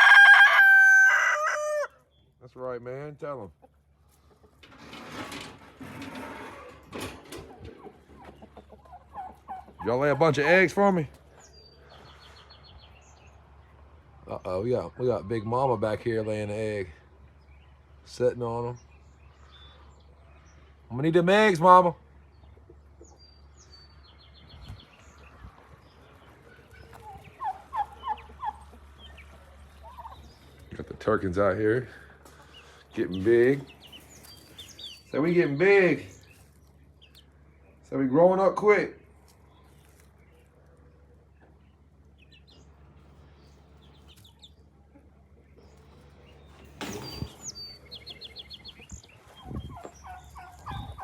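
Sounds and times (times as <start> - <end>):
turkey gobble: 0.0 - 2.0, 7.4 - 10.6, 26.5 - 30.6, 49.2 - 51.0
chickens chirping: 0.0 - 51.0
young turkeys calling: 0.0 - 51.0.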